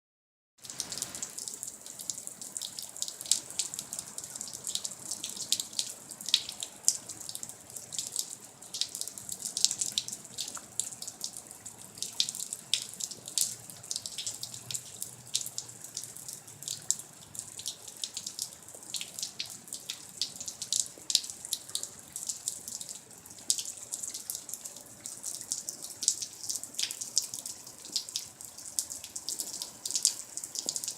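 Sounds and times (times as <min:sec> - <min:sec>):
rain falling: 0:00.6 - 0:30.9
raindrops ticking: 0:00.6 - 0:30.9.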